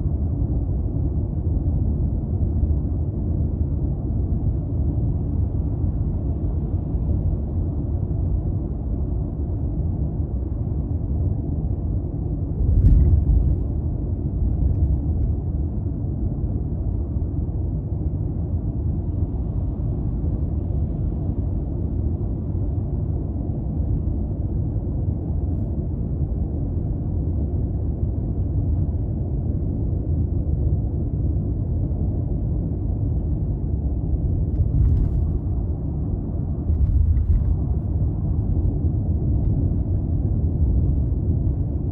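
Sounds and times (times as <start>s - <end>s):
car engine and tyres rumbling: 1.4s - 41.9s.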